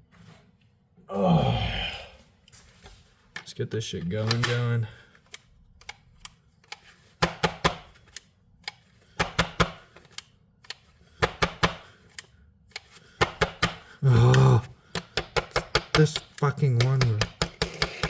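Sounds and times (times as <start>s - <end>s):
battery clicks and knocks: 8.7s - 11.9s, 15.0s - 18.0s.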